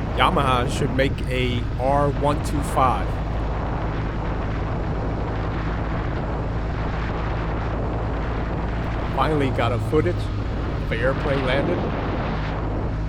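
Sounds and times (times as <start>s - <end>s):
wind noise: 0.0s - 13.0s.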